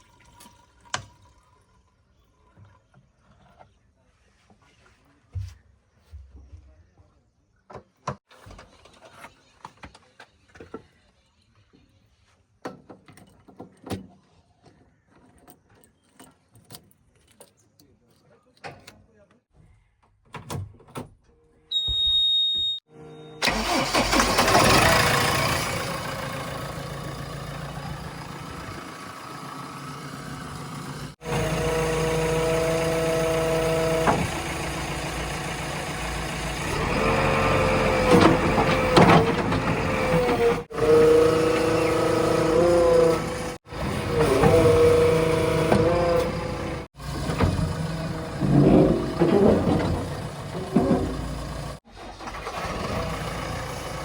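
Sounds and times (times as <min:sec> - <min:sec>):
diesel engine starting and revving: 0:22.9 - 0:54.0.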